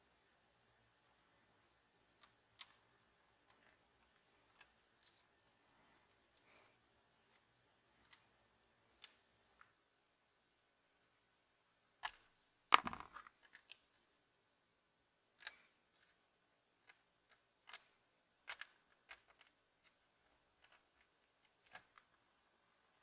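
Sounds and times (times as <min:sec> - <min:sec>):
sharp knock with rattle: 0:12.8 - 0:13.2
small hard objects clicking: 0:12.8 - 0:13.3.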